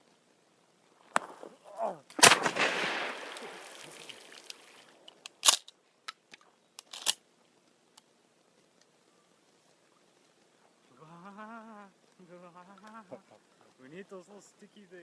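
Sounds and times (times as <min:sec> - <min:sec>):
shotgun firing with echo: 0:02.2 - 0:03.6.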